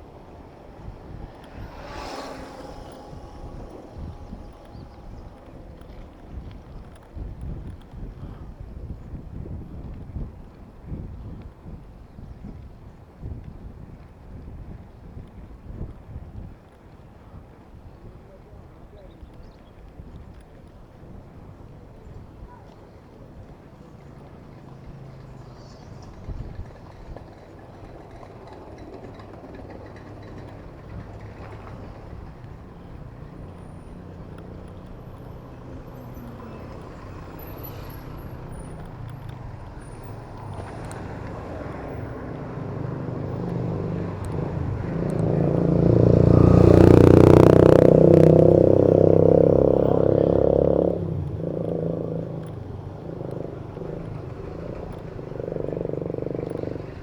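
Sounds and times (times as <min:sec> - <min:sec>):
heavy vehicle engine passing: 0:00.0 - 0:07.8, 0:24.1 - 0:57.0
road traffic noise: 0:00.0 - 0:09.2, 0:19.9 - 0:57.0.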